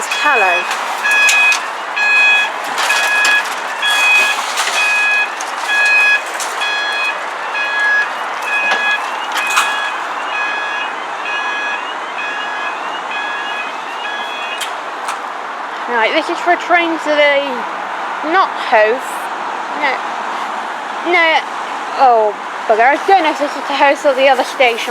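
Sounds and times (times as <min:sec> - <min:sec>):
level crossing alarm beeping: 0:00.0 - 0:15.3.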